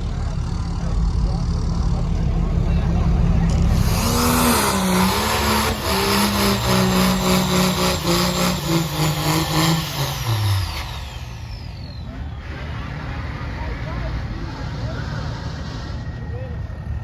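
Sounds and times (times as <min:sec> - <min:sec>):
thin falling whine: 0:00.0 - 0:12.8
truck engine revving: 0:00.0 - 0:17.0.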